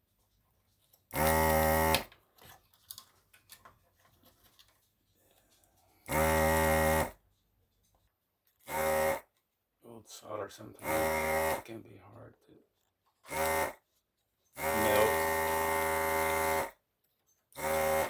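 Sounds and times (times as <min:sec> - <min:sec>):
desoldering pump buzzing: 0:01.1 - 0:02.1, 0:06.1 - 0:07.2, 0:10.8 - 0:11.6, 0:13.3 - 0:13.8, 0:14.6 - 0:16.7
faint small clicks and scrapes: 0:02.1 - 0:06.0, 0:07.3 - 0:08.6.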